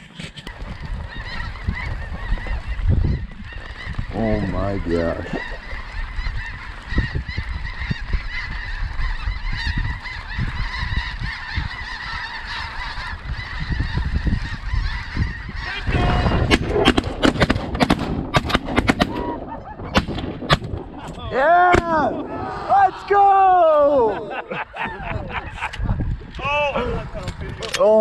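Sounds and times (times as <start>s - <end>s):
geese honking: 0.5s - 26.2s
shotgun blasts: 16.3s - 21.1s.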